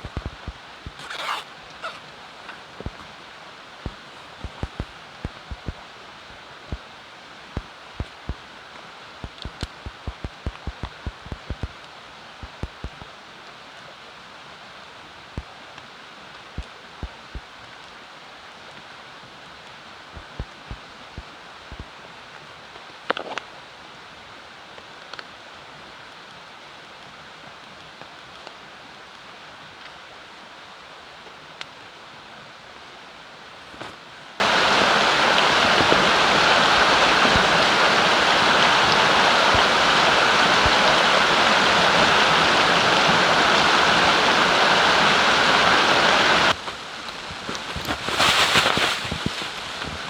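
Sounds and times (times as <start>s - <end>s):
river rushing: 0.0s - 11.6s, 34.4s - 50.0s.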